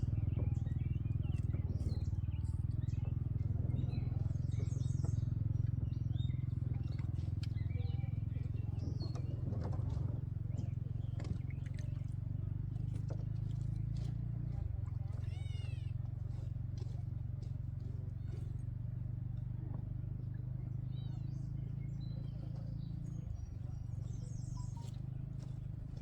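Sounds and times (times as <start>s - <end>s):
small boat motor running: 0.0s - 26.0s
birds chirping faintly: 20.0s - 26.0s.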